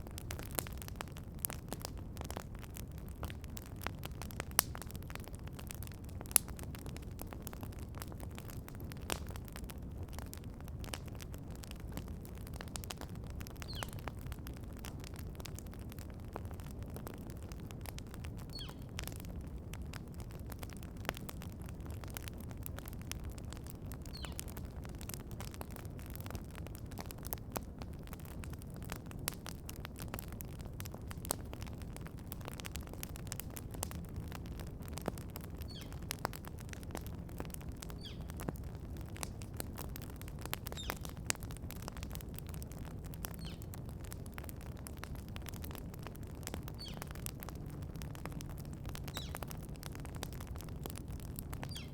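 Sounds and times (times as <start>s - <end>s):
campfire crackling and popping: 0.0s - 51.9s
bird chirping: 13.7s - 14.0s, 24.2s - 24.4s, 35.7s - 36.0s, 38.0s - 38.3s, 46.8s - 47.0s, 49.1s - 49.4s, 51.6s - 51.9s.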